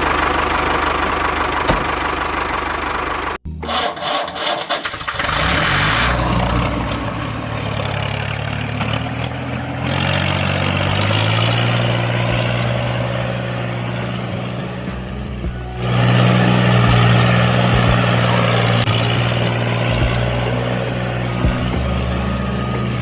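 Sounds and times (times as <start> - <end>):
small engine running: 0.0 - 23.0
mechanical rattle: 19.0 - 23.0.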